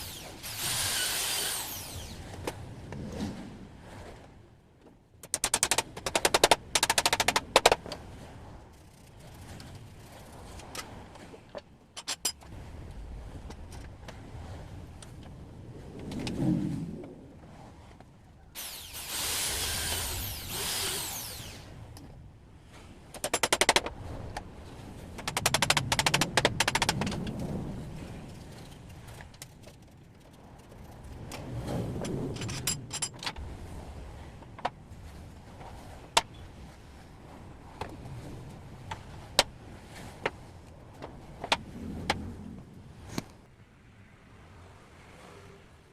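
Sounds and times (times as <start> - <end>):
high-pitched power tool: 0.0 - 2.2, 18.6 - 21.7.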